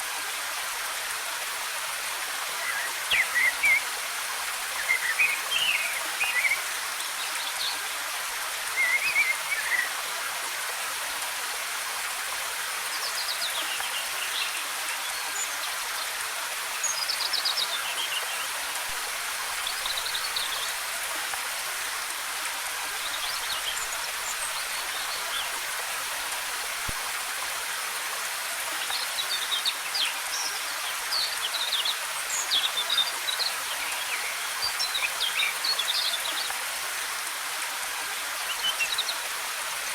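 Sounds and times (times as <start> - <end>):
waterfall rushing: 1.3 - 6.8, 7.4 - 10.8
forest birds chirping: 2.6 - 4.0, 4.6 - 7.8, 8.7 - 10.0, 22.9 - 27.0, 28.8 - 36.6.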